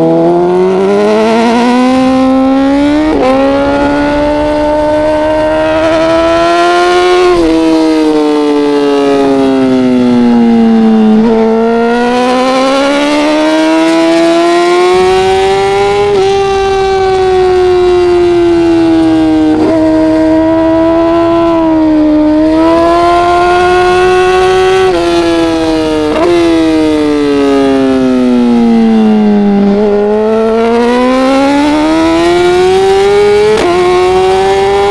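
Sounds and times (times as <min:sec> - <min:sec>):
racing motorcycle engine revving: 0:00.0 - 0:34.9.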